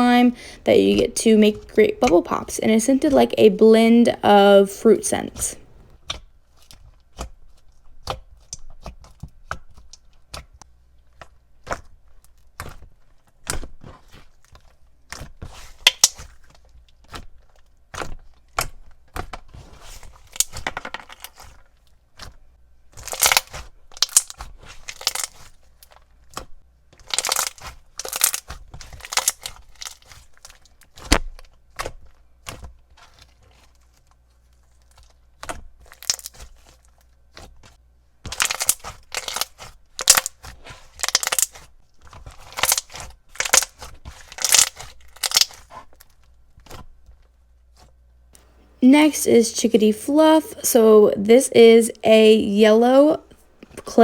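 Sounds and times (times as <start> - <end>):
slime squished by hand: 6.0 - 48.0.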